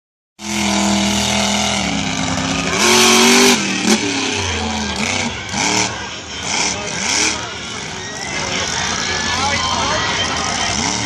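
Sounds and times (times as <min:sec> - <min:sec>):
monster truck engine revving: 0:00.4 - 0:11.0.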